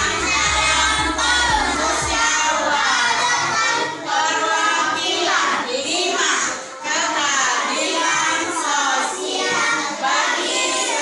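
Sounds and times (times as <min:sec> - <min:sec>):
backing music with a beat: 0:00.0 - 0:02.6
children singing together: 0:00.0 - 0:11.0.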